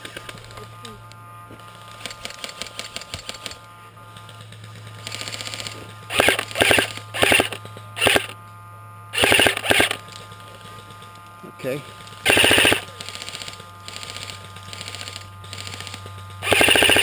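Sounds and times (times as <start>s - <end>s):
airsoft guns firing bursts: 1.8s - 8.4s, 9.2s - 11.0s, 12.0s - 17.0s.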